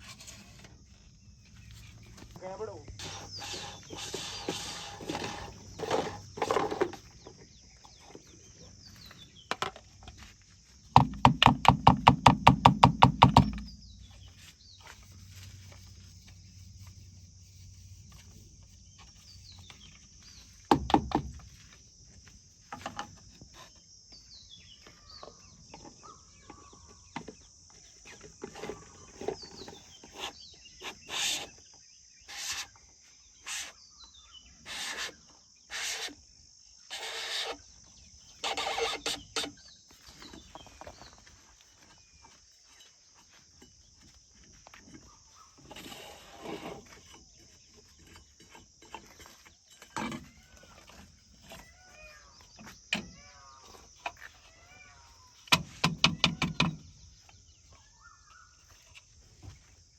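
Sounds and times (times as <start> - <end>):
insects buzzing: 0.0 - 59.9
loud rapid knocks: 11.0 - 13.8
bird chirps: 51.4 - 59.4.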